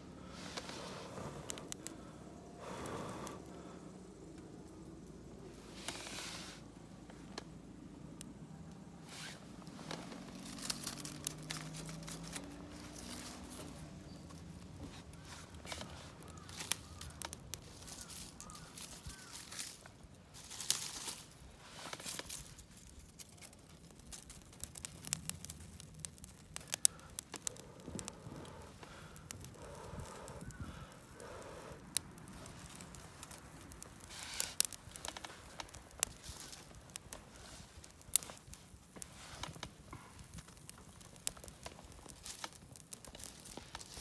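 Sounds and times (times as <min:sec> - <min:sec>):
material rustling and crinkling: 0:09.0 - 0:25.1.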